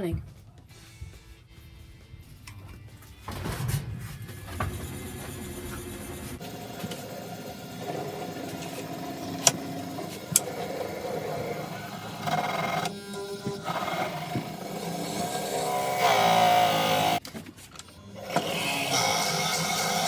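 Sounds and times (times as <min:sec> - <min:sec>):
wood lathe motor hum: 0:04.6 - 0:17.2, 0:18.2 - 0:20.0.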